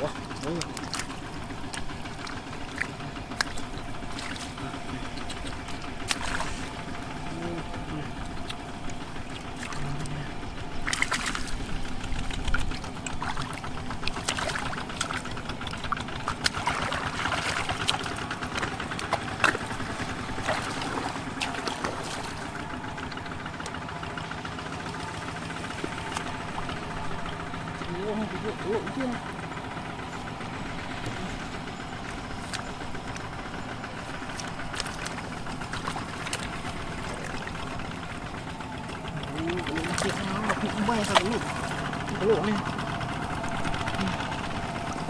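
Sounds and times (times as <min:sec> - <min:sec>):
small engine running: 0:00.0 - 0:45.0
water splashing and sloshing: 0:00.0 - 0:45.0.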